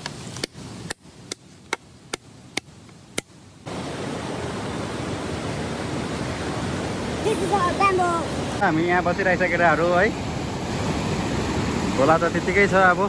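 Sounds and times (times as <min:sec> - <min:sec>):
river water rushing: 0:03.6 - 0:13.0.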